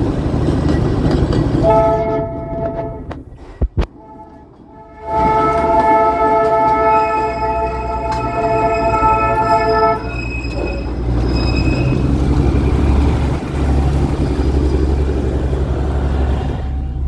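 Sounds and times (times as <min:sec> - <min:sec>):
train rumbling: 0:00.0 - 0:17.0
multi-note train horn: 0:01.6 - 0:03.2, 0:03.9 - 0:10.2.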